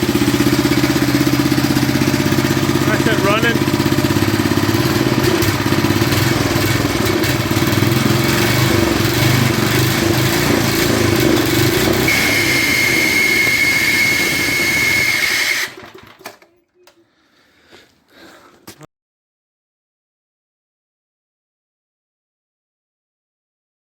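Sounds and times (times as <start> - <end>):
tiller engine running: 0.0 - 16.5
steady high whistle: 12.1 - 15.6.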